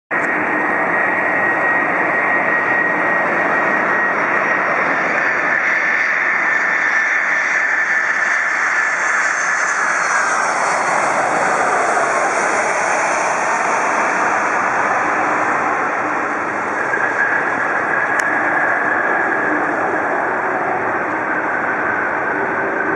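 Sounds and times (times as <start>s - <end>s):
jet engines roaring: 0.2s - 22.9s.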